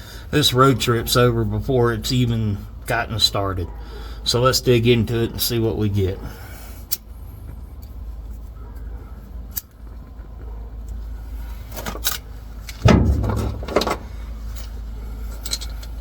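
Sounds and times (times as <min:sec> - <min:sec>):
metal tools clinking and scraping: 0:11.7 - 0:16.0.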